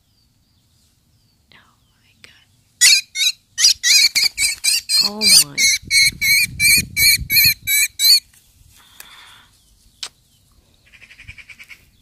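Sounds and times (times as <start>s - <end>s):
young bird distress calls: 2.8s - 8.2s, 10.8s - 11.9s.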